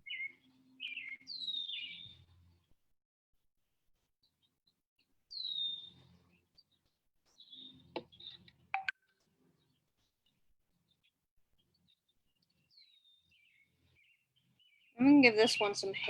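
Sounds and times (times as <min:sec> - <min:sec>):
birds chirping: 0:00.0 - 0:02.2, 0:05.3 - 0:06.4, 0:07.3 - 0:09.0, 0:11.7 - 0:16.0.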